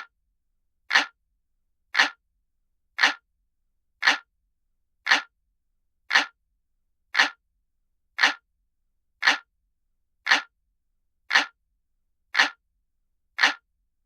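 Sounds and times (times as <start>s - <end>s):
clock ticking: 0.9s - 1.2s, 1.9s - 2.2s, 3.0s - 3.3s, 4.0s - 4.3s, 5.0s - 5.4s, 6.1s - 6.4s, 7.1s - 7.4s, 8.2s - 8.4s, 9.2s - 9.5s, 10.2s - 10.5s, 11.3s - 11.6s, 12.3s - 12.6s, 13.3s - 13.6s.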